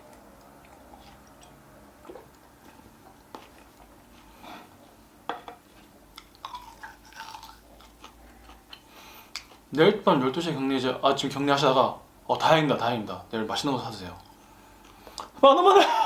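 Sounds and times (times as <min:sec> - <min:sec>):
person chewing: 0:00.0 - 0:05.0, 0:05.7 - 0:09.7.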